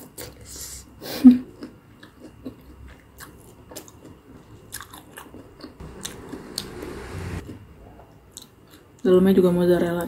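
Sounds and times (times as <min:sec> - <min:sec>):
soft crunchy chewing: 0:01.5 - 0:06.2.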